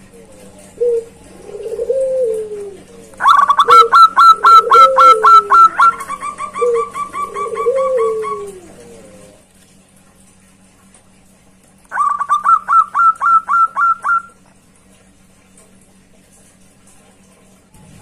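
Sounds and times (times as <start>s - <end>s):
dove cooing: 0.0s - 9.4s, 11.9s - 14.4s
rapid bird chirping: 11.9s - 14.4s.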